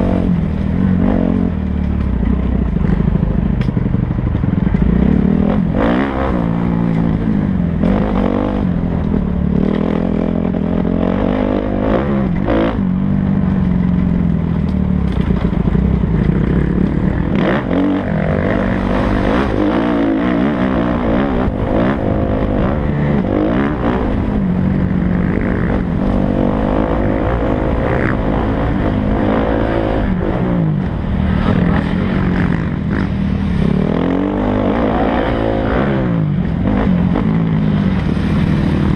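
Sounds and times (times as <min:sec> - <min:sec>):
motocross engine revving: 0:04.1 - 0:13.6, 0:14.2 - 0:38.9.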